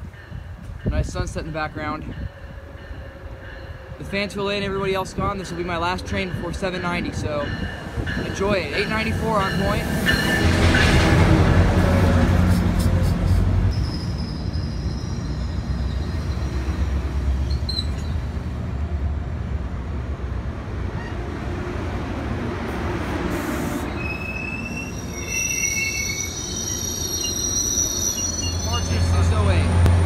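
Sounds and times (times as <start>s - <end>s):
train rumbling: 0.0s - 30.0s
wheel and brake squeals: 13.7s - 16.7s, 17.4s - 18.2s, 23.9s - 29.2s.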